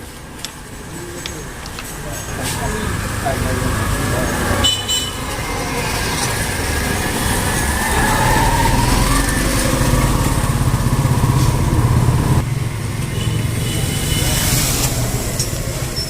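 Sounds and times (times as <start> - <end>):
motorcycle engine running: 8.8 - 14.3.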